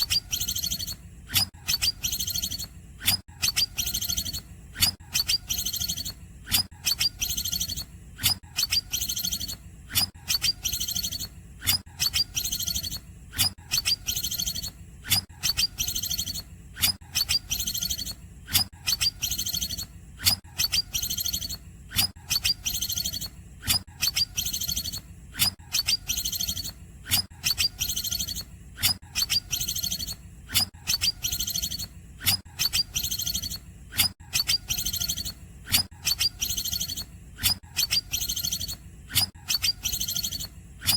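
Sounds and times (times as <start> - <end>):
bird chirping and trilling: 0.0 - 40.9.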